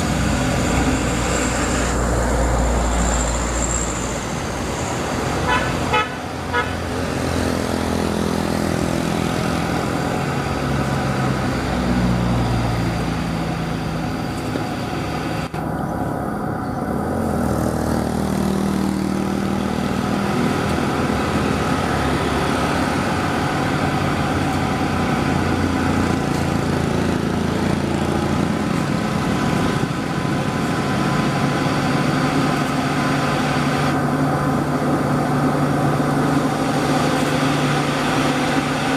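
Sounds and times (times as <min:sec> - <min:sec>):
truck engine running: 0:00.0 - 0:38.9
short horn toots: 0:05.4 - 0:06.8.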